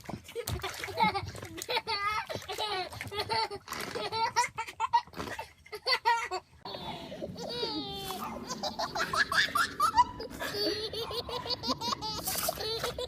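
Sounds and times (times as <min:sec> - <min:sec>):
baby laughing: 0:05.7 - 0:13.0.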